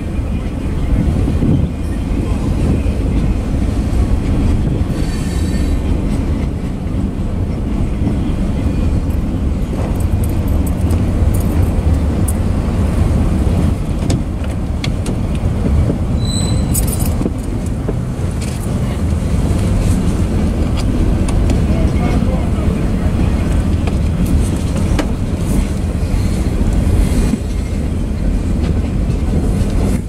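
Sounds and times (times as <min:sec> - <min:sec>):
clicks and rattles of train cars: 0:00.0 - 0:30.0
train wheels rumbling on rails: 0:00.0 - 0:30.0
high wheel squeal: 0:16.1 - 0:17.0.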